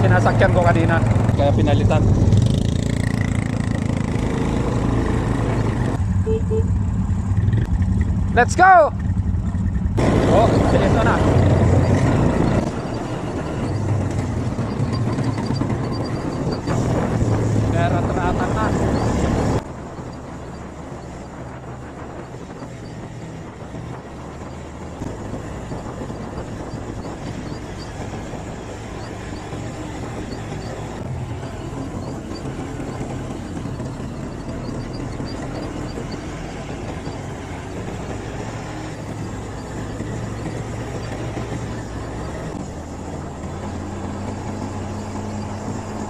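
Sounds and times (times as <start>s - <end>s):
higher-pitched engine noise: 0.0s - 46.0s
quad bike engine idling: 6.0s - 16.8s, 25.6s - 43.8s.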